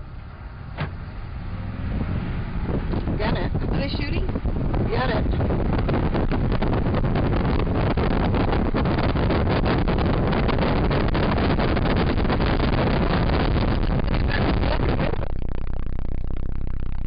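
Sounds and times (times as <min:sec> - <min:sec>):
truck engine driving: 0:00.0 - 0:17.0
knocks and rattles in cab: 0:00.7 - 0:01.1.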